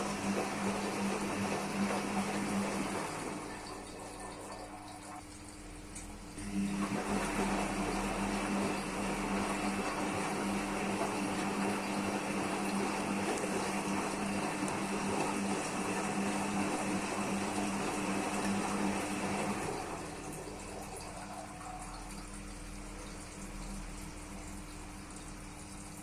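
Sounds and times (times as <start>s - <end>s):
washing machine motor humming: 0.0s - 26.0s.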